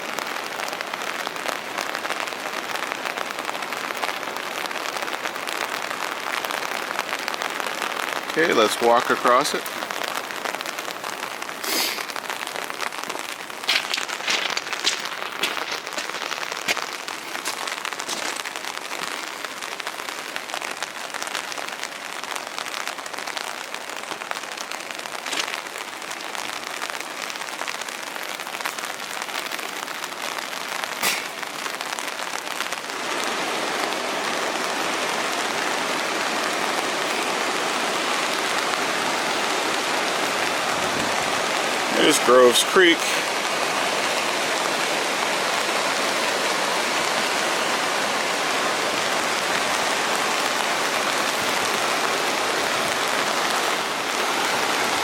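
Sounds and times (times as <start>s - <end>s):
water hissing: 11.6s - 12.2s, 31.0s - 31.5s.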